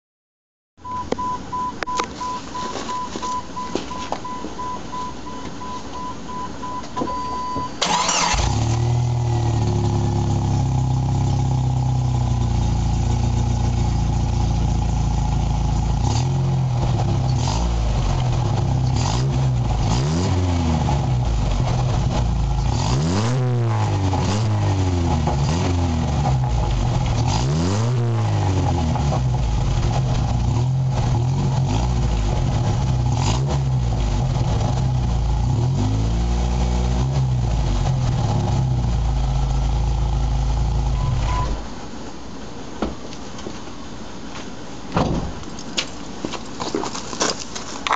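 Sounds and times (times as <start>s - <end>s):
rapid beeping warning chime: 0.8s - 7.8s
car engine starting and revving: 7.8s - 41.6s.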